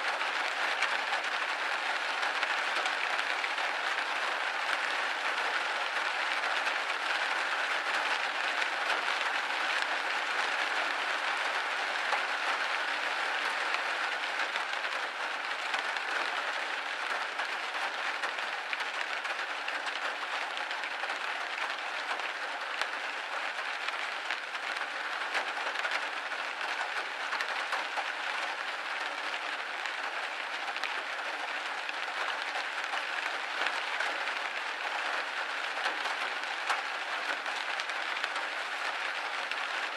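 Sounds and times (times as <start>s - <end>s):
rain pattering on window: 0.0s - 39.9s.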